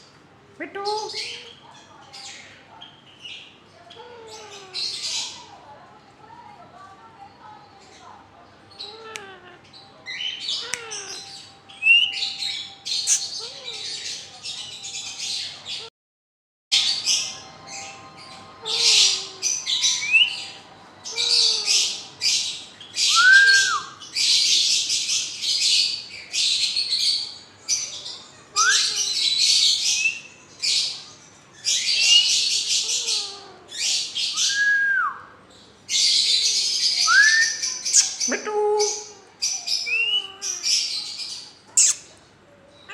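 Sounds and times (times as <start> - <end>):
parrots squawking: 8.7 - 15.9, 16.8 - 31.0, 31.6 - 34.6, 35.9 - 42.2.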